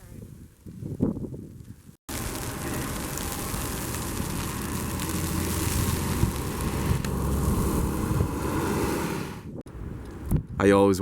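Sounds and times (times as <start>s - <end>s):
wind blowing across microphone: 0.0s - 2.0s, 5.1s - 11.0s.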